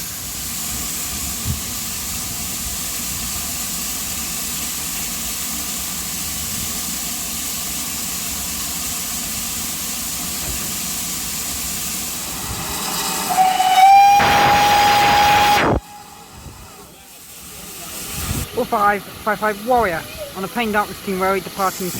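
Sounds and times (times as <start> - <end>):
steam hissing: 0.0 - 21.9
steam whistle: 12.2 - 16.8.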